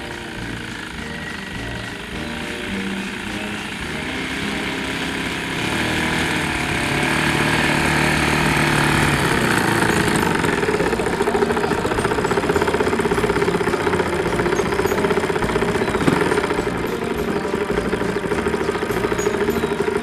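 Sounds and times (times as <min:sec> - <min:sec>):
model airplane engine running: 0:00.0 - 0:20.0.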